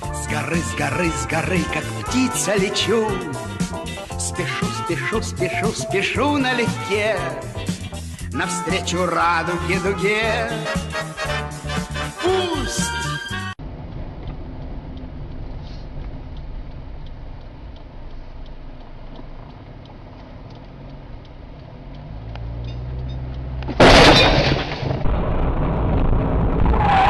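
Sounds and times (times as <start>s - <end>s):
car engine and road rumble: 13.3s - 27.0s
loud collision crash: 23.7s - 27.0s
loud noise: 23.8s - 27.0s.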